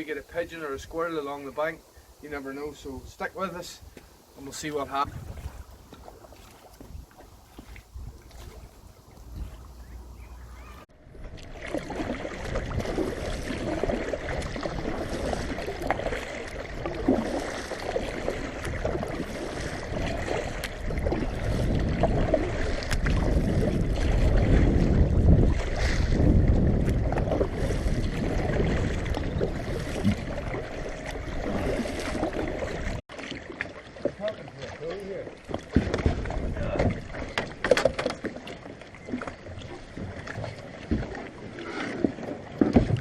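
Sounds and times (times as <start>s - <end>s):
paddle splashing and dripping: 3.8s - 43.0s
wind buffeting microphone: 4.7s - 33.0s, 35.6s - 37.6s.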